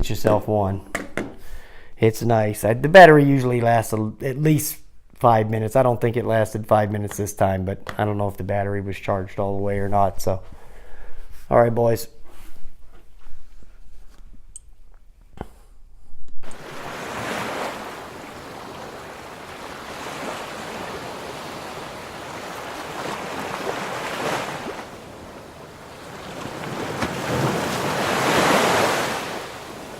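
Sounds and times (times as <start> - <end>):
surf and wind rushing: 16.4 - 29.9.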